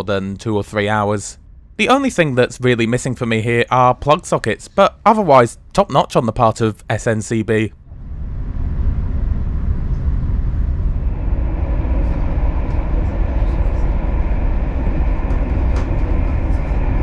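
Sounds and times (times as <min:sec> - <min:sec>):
train coach rumbling: 0:07.8 - 0:17.0.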